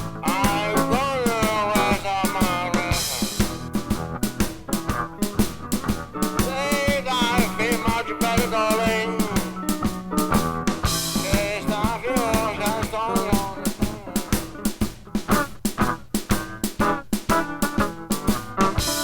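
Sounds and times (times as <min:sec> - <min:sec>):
blues song: 0:00.0 - 0:19.0
drum kit beat: 0:00.0 - 0:19.0.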